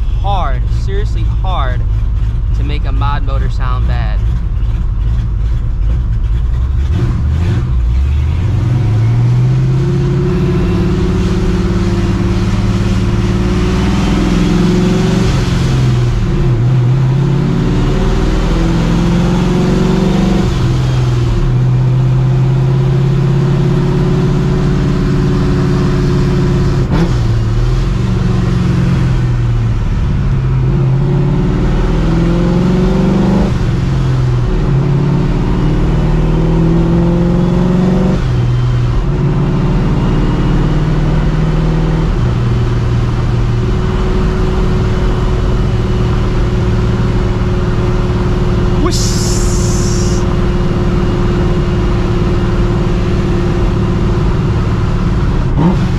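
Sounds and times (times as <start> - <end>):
faint high supercharger whine: 0.0 - 6.9, 7.6 - 31.6, 42.1 - 55.6
loud car engine revving: 0.0 - 55.9.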